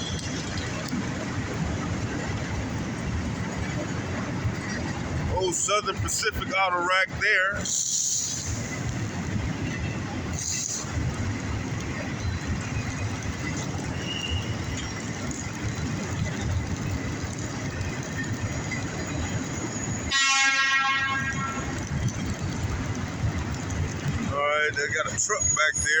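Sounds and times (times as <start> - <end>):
train wheels rumbling on rail: 0.0 - 26.0
loud train horn: 20.1 - 21.9.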